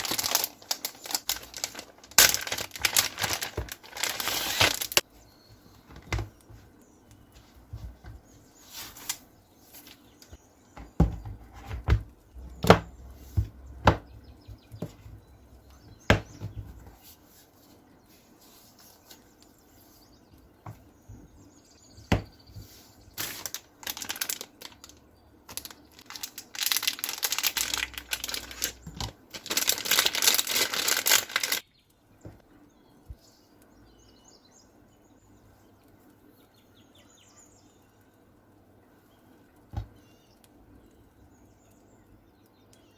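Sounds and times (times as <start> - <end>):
plastic wrapping crinkling and tearing: 0.0 - 5.0, 23.1 - 31.7.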